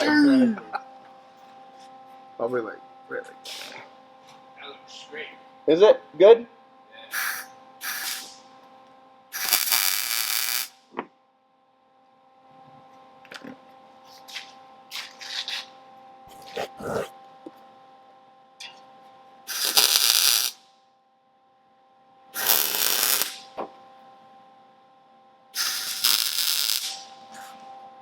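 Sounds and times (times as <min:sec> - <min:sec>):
steady machine hum: 0:00.0 - 0:28.0
welder crackling and hissing: 0:03.4 - 0:03.9, 0:07.1 - 0:08.5, 0:09.3 - 0:10.9, 0:19.5 - 0:20.6, 0:22.4 - 0:23.6, 0:25.6 - 0:27.6.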